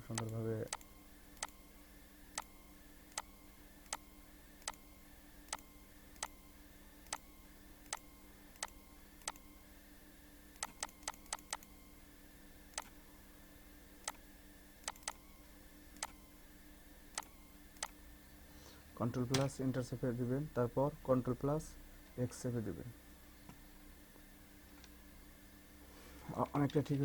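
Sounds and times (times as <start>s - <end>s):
faint steady hum: 0.0s - 27.0s
computer mouse clicking: 0.1s - 1.6s, 5.5s - 6.4s, 8.6s - 9.5s, 10.6s - 11.7s, 14.8s - 15.2s, 17.2s - 18.0s.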